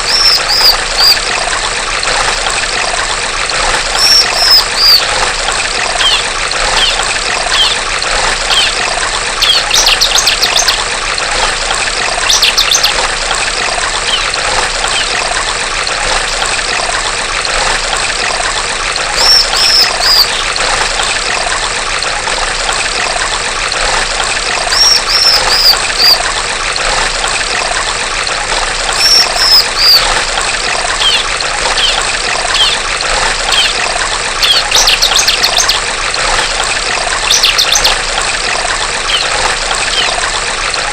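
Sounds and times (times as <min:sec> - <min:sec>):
bird calling high notes and trills: 0:00.0 - 0:01.2, 0:03.9 - 0:05.1, 0:06.0 - 0:07.8, 0:08.5 - 0:08.8, 0:09.4 - 0:10.8, 0:12.3 - 0:13.0, 0:14.0 - 0:15.2, 0:19.2 - 0:20.5, 0:24.7 - 0:26.2, 0:28.9 - 0:30.1, 0:31.0 - 0:32.9, 0:33.5 - 0:33.8, 0:34.4 - 0:35.9, 0:37.3 - 0:38.0, 0:39.1 - 0:40.2
stream water trickling: 0:00.0 - 0:40.9.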